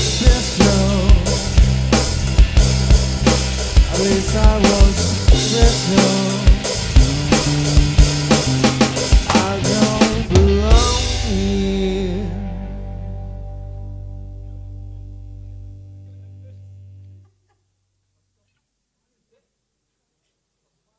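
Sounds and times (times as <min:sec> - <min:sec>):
drum kit beating: 0:00.0 - 0:14.0
live rock band: 0:00.0 - 0:15.3.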